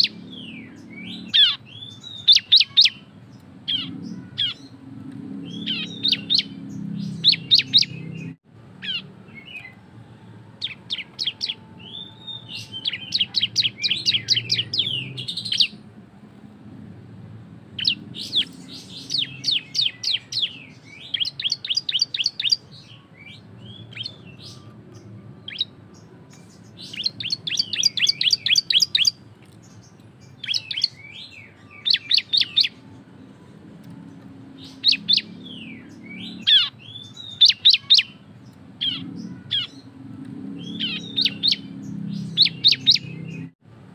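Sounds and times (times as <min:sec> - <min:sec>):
bird singing fast trills: 0:00.0 - 0:09.8, 0:10.6 - 0:15.9, 0:17.7 - 0:33.0, 0:34.3 - 0:43.6.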